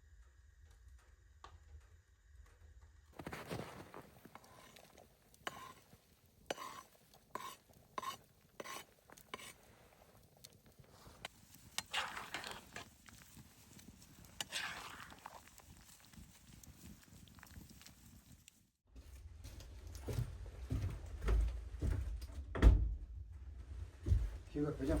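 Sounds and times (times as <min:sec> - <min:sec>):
utensil scraping pot: 0:04.2 - 0:16.7.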